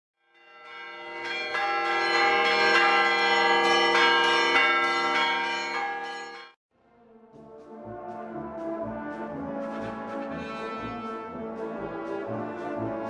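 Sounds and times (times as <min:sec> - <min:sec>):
bells ringing: 0:00.2 - 0:06.6.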